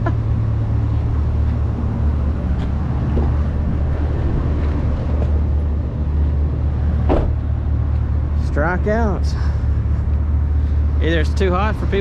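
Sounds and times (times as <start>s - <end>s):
truck engine and road rumble: 0.0s - 12.0s.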